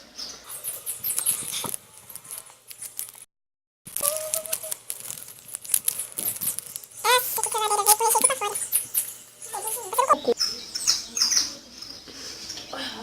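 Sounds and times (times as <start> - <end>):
person humming: 4.0 - 4.8
candy wrapper crinkling: 4.0 - 10.2.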